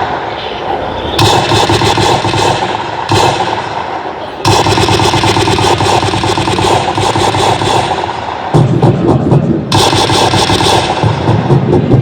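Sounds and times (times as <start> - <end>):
automatic gunfire bursts: 1.2 - 8.6, 9.7 - 11.5.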